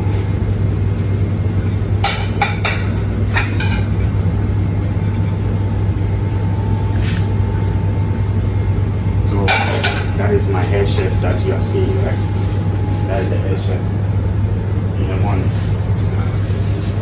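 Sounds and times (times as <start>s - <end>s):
low hum of kitchen machinery: 0.0s - 17.0s
dishes clattering: 2.0s - 4.2s, 9.5s - 10.2s.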